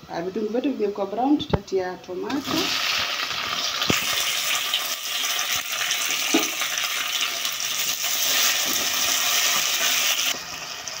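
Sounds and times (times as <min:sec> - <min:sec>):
tomatoes sizzling in hot oil: 0:02.2 - 0:11.0.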